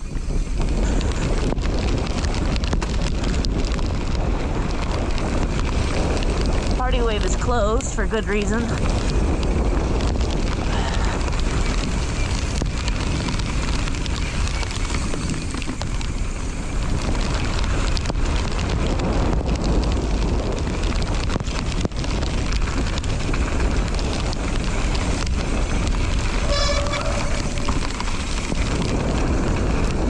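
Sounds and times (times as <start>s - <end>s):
tyres rumbling over wet dirt: 0.0s - 30.0s
wind buffeting microphone: 0.0s - 30.0s
bike knocks and rattles: 8.6s - 30.0s.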